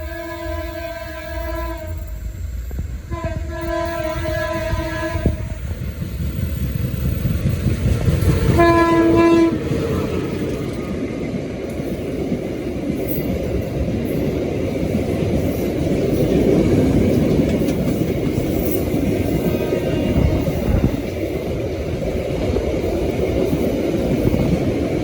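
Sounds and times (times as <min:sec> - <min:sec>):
locomotive horn blast: 0:00.0 - 0:02.4, 0:03.0 - 0:05.6, 0:08.4 - 0:09.7
train wheels rumbling on rail: 0:00.0 - 0:25.0.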